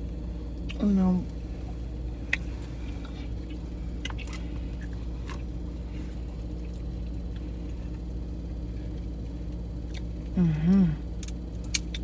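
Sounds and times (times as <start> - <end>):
air conditioning hum: 0.0 - 12.0
eating sounds: 2.2 - 8.1.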